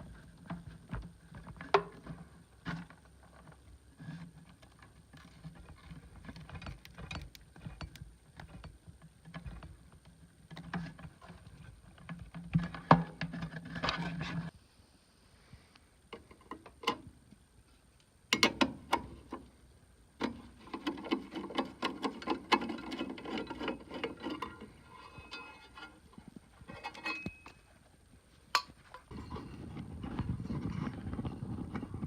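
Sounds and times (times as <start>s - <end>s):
tools and metal parts rattling: 5.2s - 8.8s, 20.7s - 27.7s.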